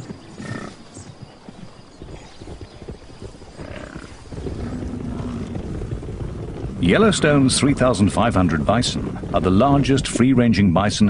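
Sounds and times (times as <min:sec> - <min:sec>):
hooves clopping on ground: 0:00.0 - 0:11.0
animal grunts: 0:00.4 - 0:00.8, 0:03.6 - 0:05.6
low rumble: 0:04.2 - 0:11.0.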